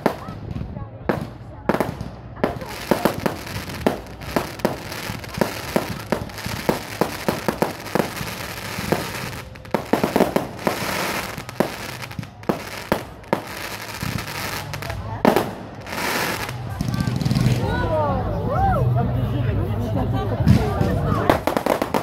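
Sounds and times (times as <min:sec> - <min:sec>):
fireworks bangs: 0:00.0 - 0:17.6, 0:20.5 - 0:22.0
crackling hiss: 0:02.5 - 0:16.8.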